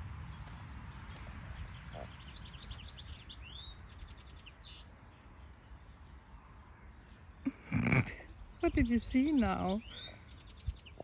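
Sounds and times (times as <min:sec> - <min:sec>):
songbird trills and chirps: 0:00.2 - 0:07.6, 0:08.2 - 0:11.0.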